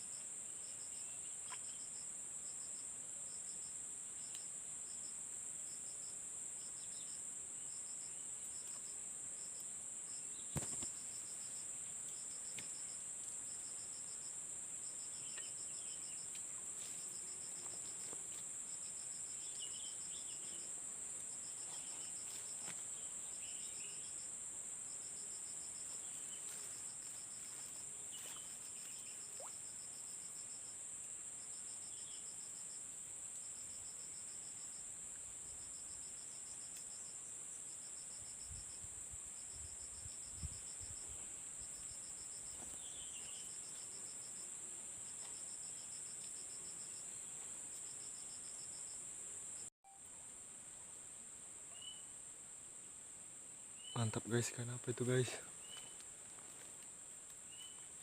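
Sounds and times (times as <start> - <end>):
pulsed cricket-like buzz: 4.4 - 50.0.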